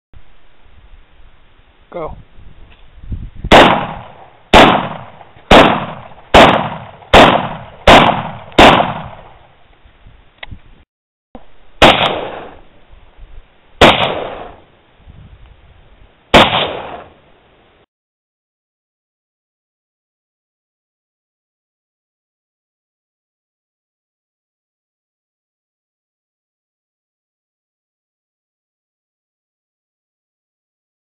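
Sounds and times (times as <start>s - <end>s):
rifle shots with echo: 3.5s - 9.5s, 11.4s - 12.7s, 13.8s - 14.7s, 16.3s - 17.2s.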